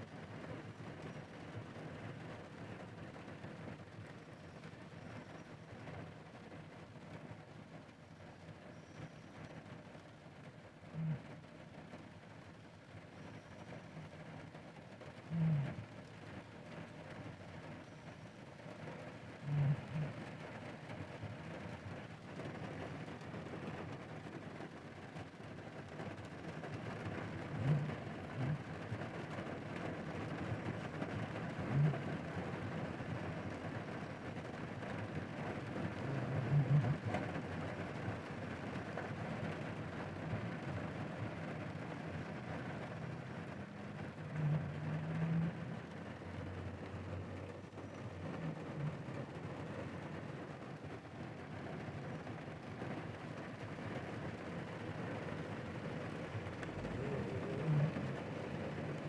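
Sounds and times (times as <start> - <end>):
heavy rain on a car: 0.0 - 59.0
low steady hum: 26.0 - 59.0.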